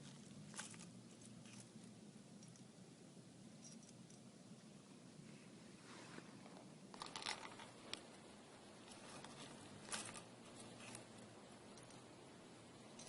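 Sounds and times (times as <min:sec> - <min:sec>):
faint rustling clicks: 0:05.9 - 0:08.2.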